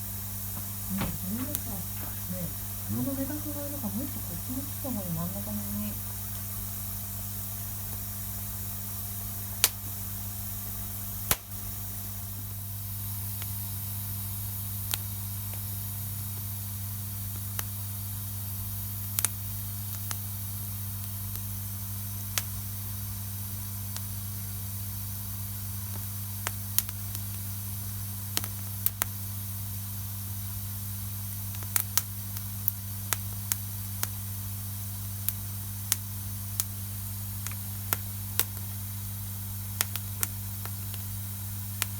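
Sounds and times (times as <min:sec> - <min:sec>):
wood fire crackling: 0:00.4 - 0:06.4, 0:35.0 - 0:41.9.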